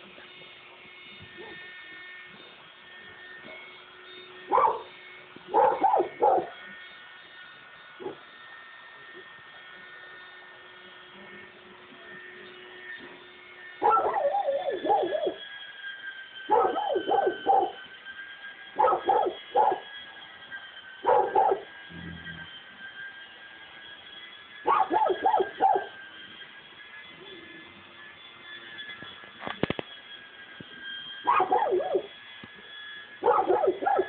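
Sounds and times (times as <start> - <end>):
dog barking: 1.4 - 1.6, 4.5 - 4.9, 5.6 - 6.6, 13.8 - 15.2, 16.5 - 17.8, 18.8 - 19.8, 21.0 - 21.7, 24.7 - 25.9, 31.3 - 32.1, 33.2 - 34.0.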